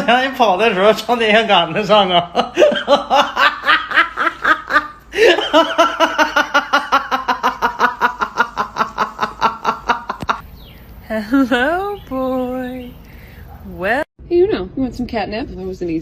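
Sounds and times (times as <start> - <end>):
person laughing hard: 2.4 - 10.4.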